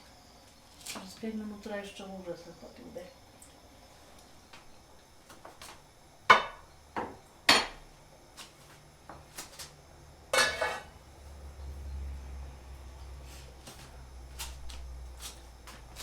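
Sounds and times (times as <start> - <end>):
kitchenware knocks: 6.3 - 7.8.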